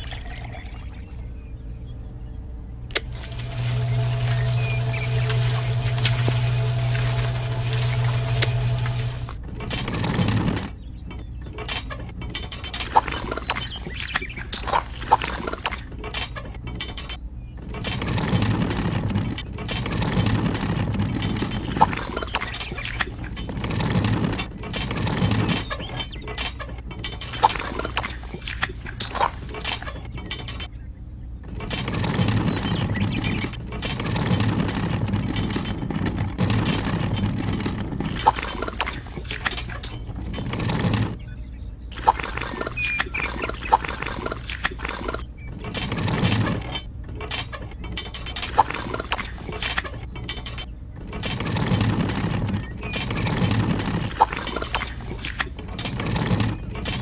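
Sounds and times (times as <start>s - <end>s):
low hum: 0.0s - 11.0s
clicks: 2.9s - 10.7s
small motor whirring and rattling: 2.9s - 10.8s, 17.6s - 26.2s, 31.5s - 41.2s, 45.5s - 46.9s, 51.0s - 54.9s, 55.6s - 57.0s
geared mechanism clicking: 2.9s - 14.1s, 16.0s - 28.0s, 31.4s - 41.4s, 44.5s - 57.0s.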